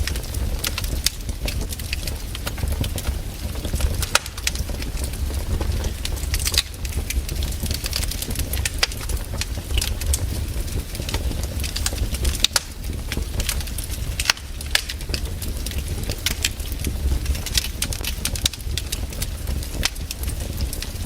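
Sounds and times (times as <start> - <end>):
low rumble: 0.0 - 16.3
fireplace fire crackling: 0.0 - 21.0
sharp pops of fire: 0.0 - 21.0.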